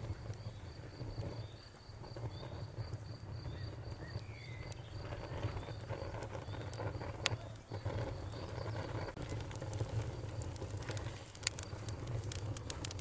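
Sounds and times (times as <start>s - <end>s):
crickets chirping: 0.0s - 9.2s
crackling wood campfire: 0.0s - 13.0s.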